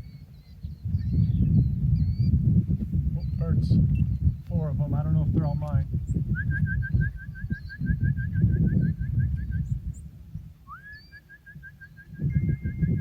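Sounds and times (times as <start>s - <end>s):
small bird trilling: 0.0s - 2.4s.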